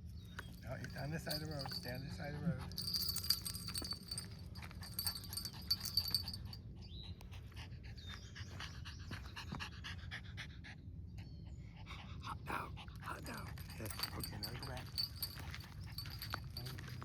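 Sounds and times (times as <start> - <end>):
collar tags jingling: 0.1 - 7.2, 12.9 - 17.0
dog panting: 2.6 - 10.8, 11.4 - 17.0.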